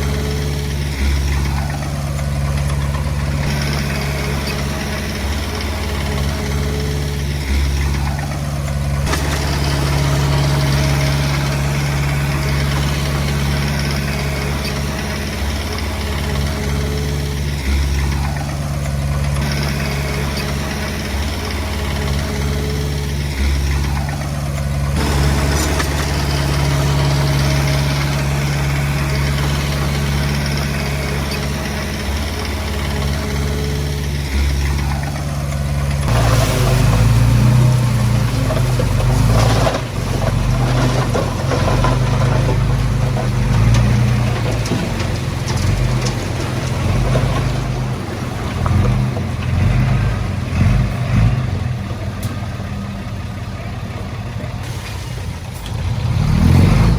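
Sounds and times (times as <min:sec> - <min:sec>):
bulldozer diesel engine running: 0:00.0 - 0:56.9.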